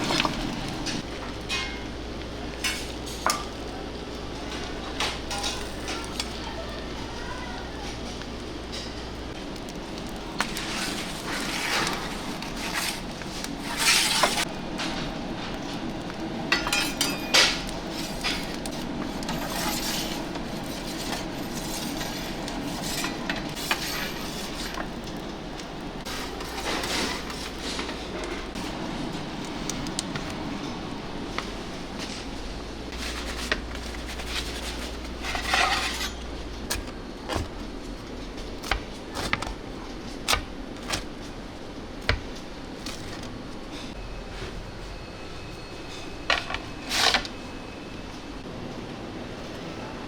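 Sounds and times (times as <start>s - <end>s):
dishes and utensils clattering: 0.0s - 3.7s, 4.3s - 6.7s, 16.5s - 25.4s, 26.0s - 28.6s, 32.9s - 37.6s
kitchen hum: 0.0s - 50.0s.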